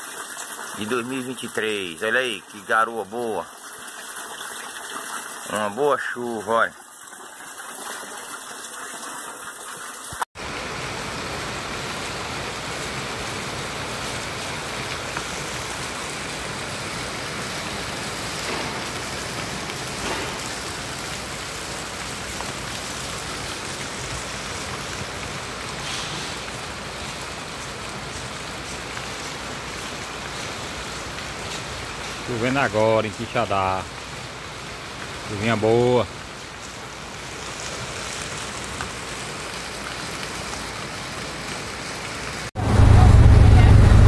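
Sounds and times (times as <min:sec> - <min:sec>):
water splashing: 0:00.0 - 0:33.9
water rushing over pavement: 0:00.0 - 0:44.0
heavy rain on a flooded street: 0:10.4 - 0:44.0.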